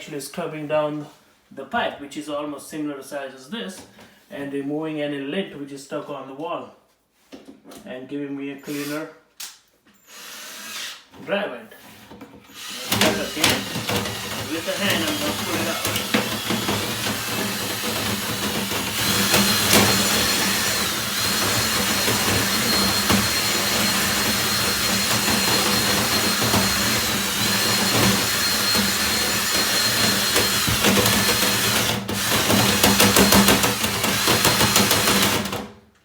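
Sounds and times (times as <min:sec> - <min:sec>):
rods and brush rattling: 0:12.6 - 0:35.3
drill motor whine: 0:12.6 - 0:35.6.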